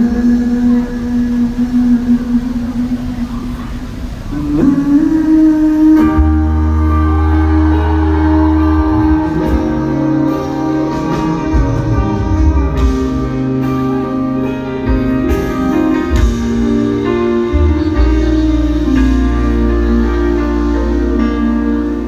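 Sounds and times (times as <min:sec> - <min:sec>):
bass guitar notes: 0:00.0 - 0:22.0
guitar playing held chords: 0:00.0 - 0:22.0.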